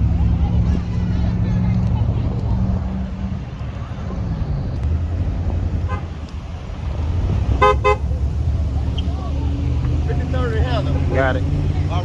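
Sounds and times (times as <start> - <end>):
vehicle engines rumbling: 0.0 - 12.0
car horn toots: 5.9 - 6.1, 7.6 - 8.1.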